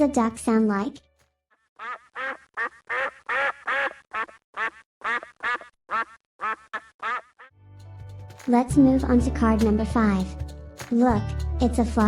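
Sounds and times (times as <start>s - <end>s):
duck quacking: 1.8s - 7.5s.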